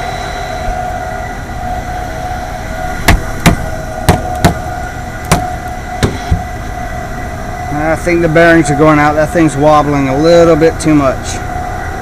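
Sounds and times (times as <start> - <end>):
fan motor whining: 0.0 - 12.0
sharp knocks: 3.1 - 4.6, 5.3 - 6.5.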